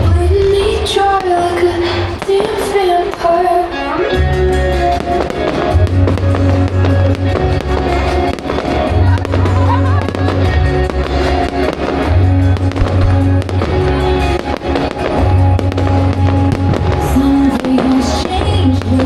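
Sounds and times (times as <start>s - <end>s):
fireworks banging and crackling: 0.0s - 19.0s
loud music with heavy bass: 4.1s - 19.0s.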